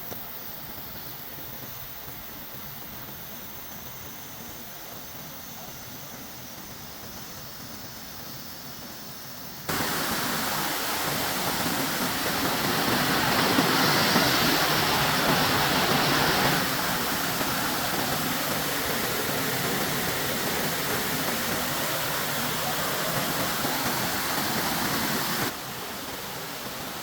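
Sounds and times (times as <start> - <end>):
waterfall rushing: 9.7 - 27.0.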